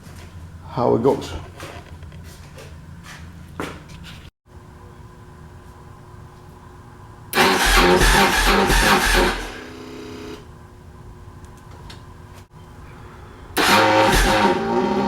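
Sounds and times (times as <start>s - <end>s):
motorcycle engine cranking: 7.4s - 9.6s, 13.6s - 15.0s.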